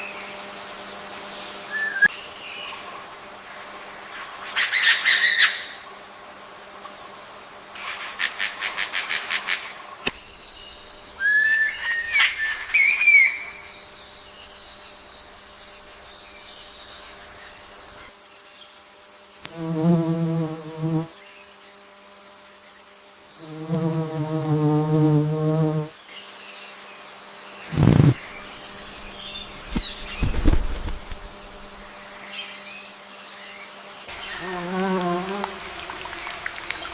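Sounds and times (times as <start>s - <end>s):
short gliding whistled bird calls: 1.7s - 2.2s, 11.2s - 13.8s
low buzzy calls: 27.6s - 32.2s.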